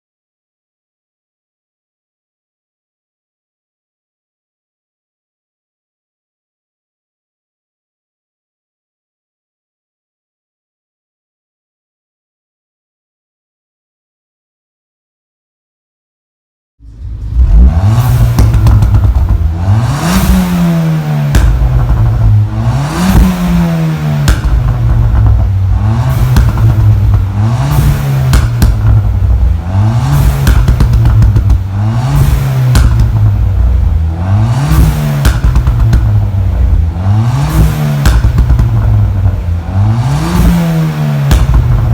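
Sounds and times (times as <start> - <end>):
car engine revving: 16.8 - 41.9
exhaust pops and bangs: 17.3 - 41.9.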